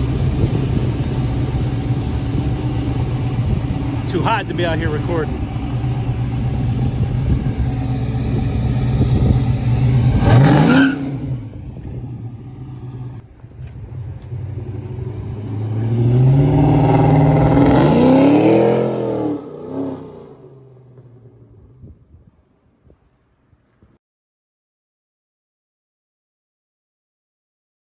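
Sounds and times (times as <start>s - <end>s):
car engine revving: 0.0s - 21.4s.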